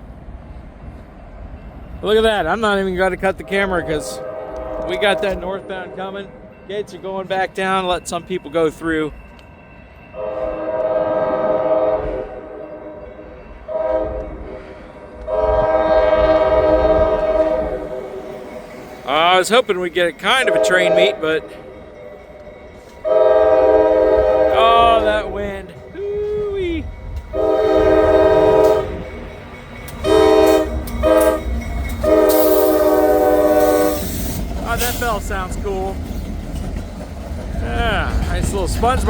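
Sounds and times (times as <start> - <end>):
locomotive air horn blasts: 3.4 - 6.0, 10.2 - 12.7, 13.7 - 18.3, 20.4 - 21.2, 23.0 - 25.3, 27.3 - 29.2, 30.0 - 34.1
wind rumble on microphone: 15.2 - 17.9.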